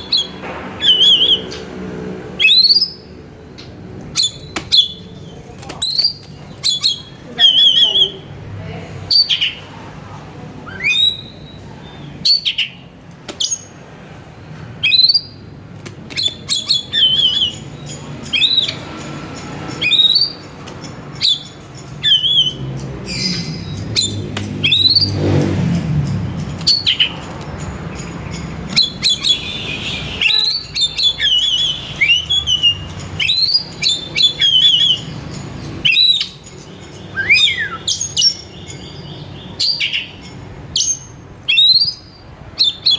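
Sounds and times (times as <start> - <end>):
bird whistled chirps: 10.7 - 11.6, 21.2 - 25.2, 28.8 - 35.2, 35.8 - 36.4, 37.1 - 38.6.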